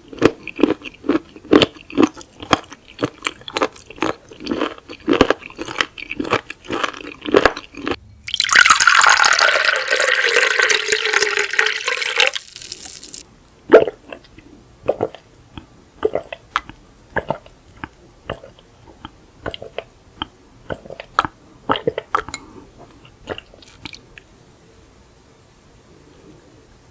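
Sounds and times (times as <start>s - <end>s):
close chewing: 0.0s - 8.0s, 12.7s - 24.3s
drink poured into a glass: 8.3s - 13.2s
wet mouth clicks: 13.8s - 24.2s.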